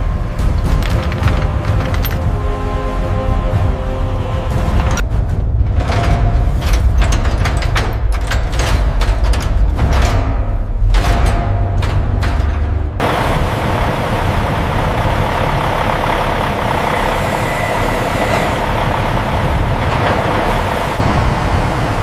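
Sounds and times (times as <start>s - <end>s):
loud machine noise: 13.0s - 22.0s.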